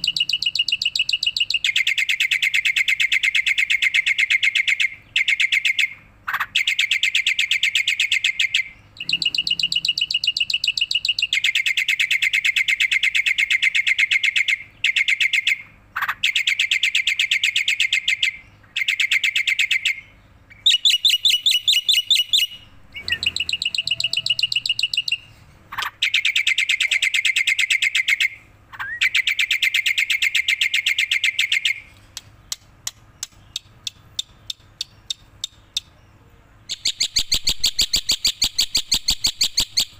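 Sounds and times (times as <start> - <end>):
bird clicks: 31.9 - 35.9.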